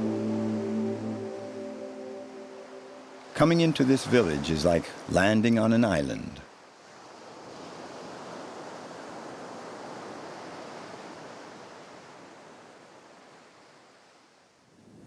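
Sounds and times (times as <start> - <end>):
sea surf washing: 0.0 - 6.1.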